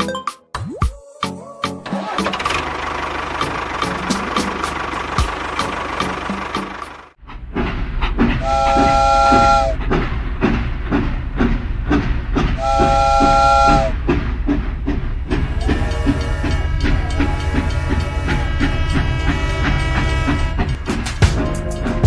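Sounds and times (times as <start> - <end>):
music: 0.0 - 2.3, 15.7 - 22.0
train wheels clickety-clack: 3.4 - 22.0
train whistle blowing: 8.4 - 9.8, 12.6 - 14.0, 15.4 - 21.2.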